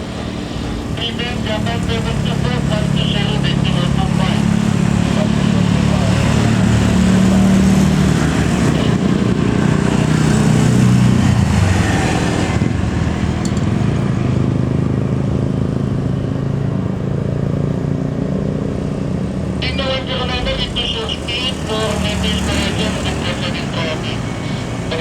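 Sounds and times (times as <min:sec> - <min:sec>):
jet engine roar: 0:00.0 - 0:14.5, 0:19.6 - 0:25.0.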